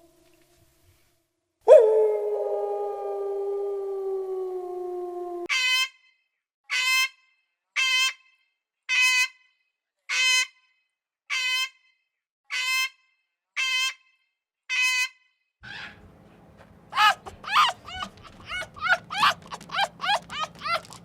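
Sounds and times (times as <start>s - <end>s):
animal nasal honking call: 17.0s - 21.0s.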